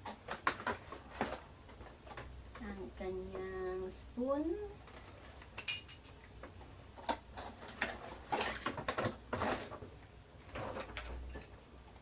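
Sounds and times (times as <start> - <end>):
packaging rustling and scraping: 0.0 - 2.3, 7.0 - 11.6.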